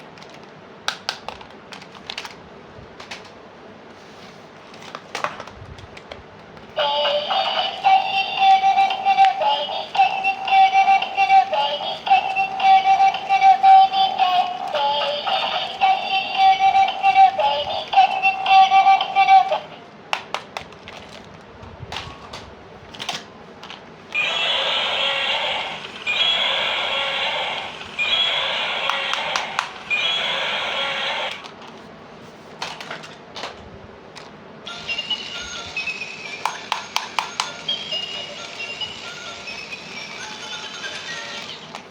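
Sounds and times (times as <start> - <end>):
harsh noisy bursts: 24.2 - 31.4
sharp clicks: 27.7 - 30.4.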